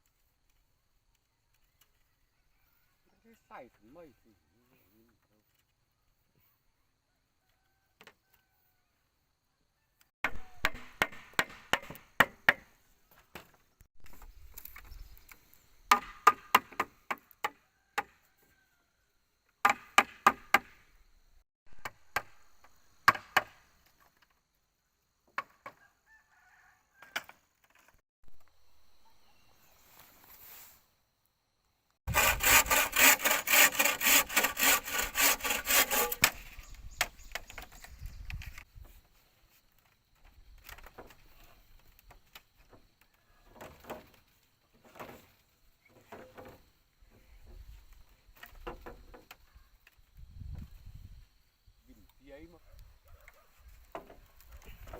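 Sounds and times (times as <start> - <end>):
sharp knocks and chops on wood: 10.3 - 12.7, 15.9 - 18.2, 19.6 - 20.8, 21.8 - 23.6
rapid sawing strokes: 32.1 - 36.6.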